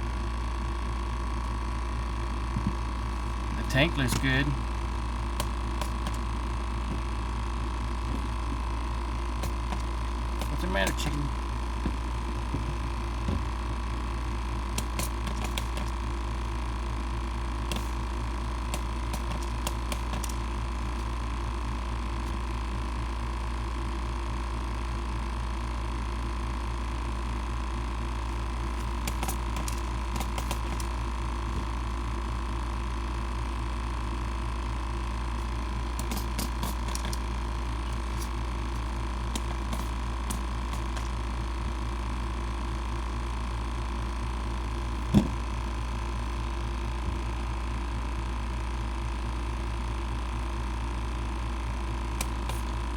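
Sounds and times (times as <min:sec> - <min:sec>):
electric air pump humming: 0:00.0 - 0:52.9.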